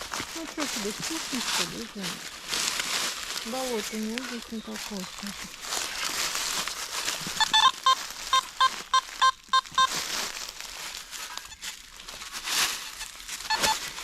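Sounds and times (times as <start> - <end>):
rustling and scraping on forest floor: 0.0 - 14.0
metal detector beeping: 7.3 - 10.0, 12.9 - 13.8.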